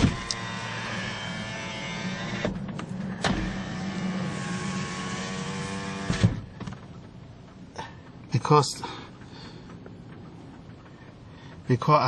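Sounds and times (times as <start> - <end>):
window stopping thump: 0.0 - 1.0, 2.3 - 6.8
window motor click: 0.0 - 6.5
power window motor running: 0.0 - 7.2
window stopping clunk: 0.0 - 7.2.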